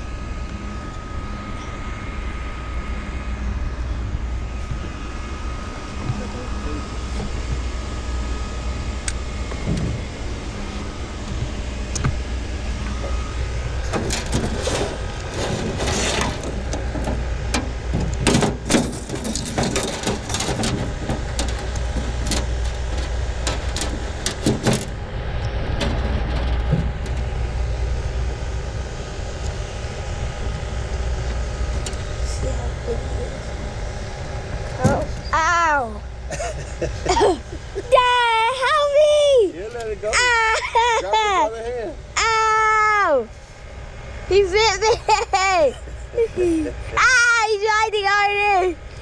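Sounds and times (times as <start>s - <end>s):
low engine hum: 0.0s - 49.0s
sharp clicks and knocks: 13.9s - 27.3s.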